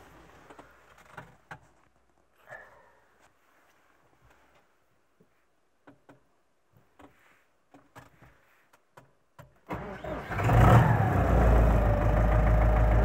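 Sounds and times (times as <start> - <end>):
diesel engine cranking and starting: 9.7 - 13.0.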